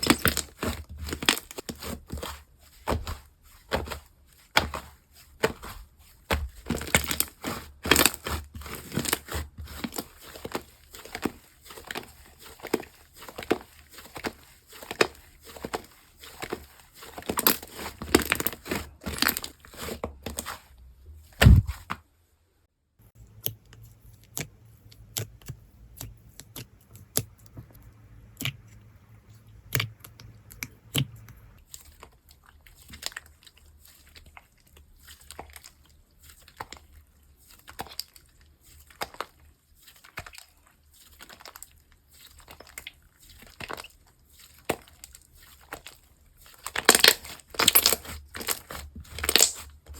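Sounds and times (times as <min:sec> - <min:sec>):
slime squished by hand: 0:21.3 - 0:22.0
low thump: 0:21.4 - 0:21.8.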